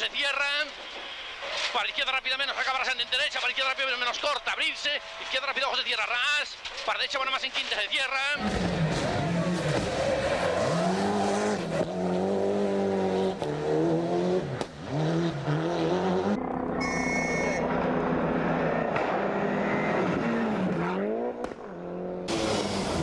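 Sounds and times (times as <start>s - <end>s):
rally car engine revving through gears: 8.4s - 16.9s, 17.6s - 23.0s.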